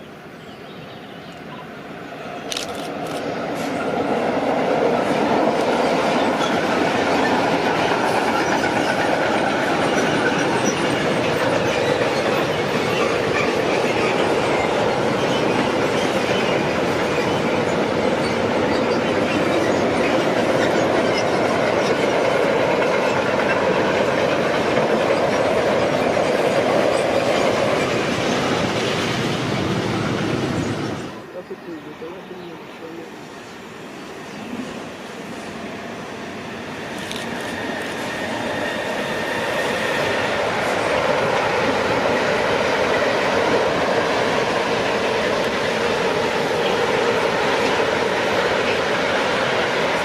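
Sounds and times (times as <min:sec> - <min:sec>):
train wheels rumbling on rails: 0:02.2 - 0:50.0.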